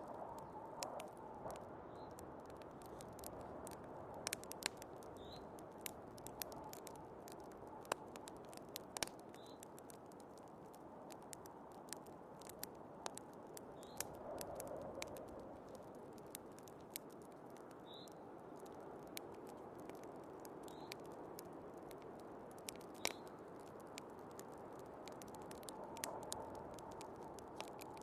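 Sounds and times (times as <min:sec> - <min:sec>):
fireplace wood crackling and popping: 0:00.0 - 0:28.0.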